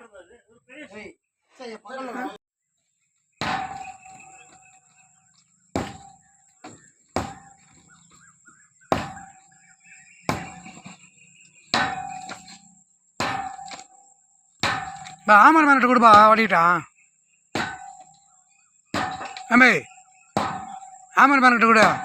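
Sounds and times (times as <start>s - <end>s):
hammer striking metal: 3.4s - 4.6s, 11.7s - 14.0s, 14.6s - 15.3s, 17.6s - 18.2s, 19.0s - 19.7s, 20.4s - 21.0s.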